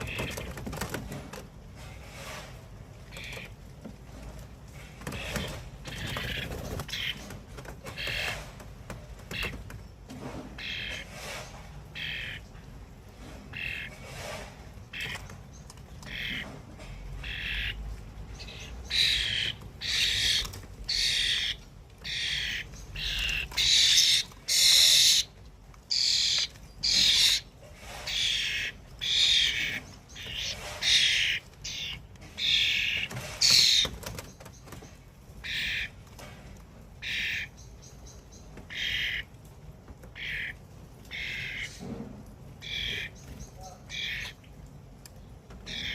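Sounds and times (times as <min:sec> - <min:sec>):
repeated short bird calls: 0:00.0 - 0:01.1, 0:01.8 - 0:03.8, 0:04.7 - 0:39.4, 0:40.0 - 0:44.6, 0:45.2 - 0:45.9.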